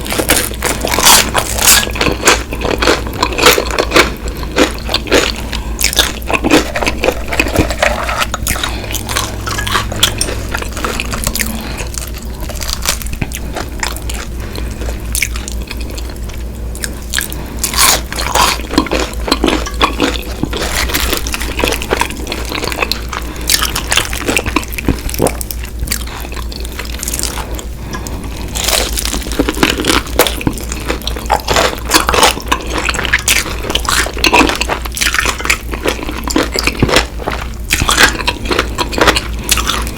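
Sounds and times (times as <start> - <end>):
chewing: 0.0 - 39.9
crunchy bites of fried chicken: 28.6 - 39.9.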